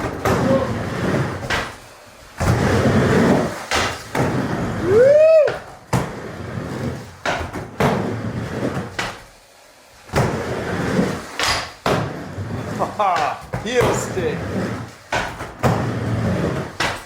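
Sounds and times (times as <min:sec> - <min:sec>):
skateboard wheels rolling on wood: 0:00.0 - 0:17.0
skateboard clacking on ramp: 0:02.4 - 0:06.2, 0:06.9 - 0:09.3, 0:10.1 - 0:17.0
person whooping: 0:04.8 - 0:05.7.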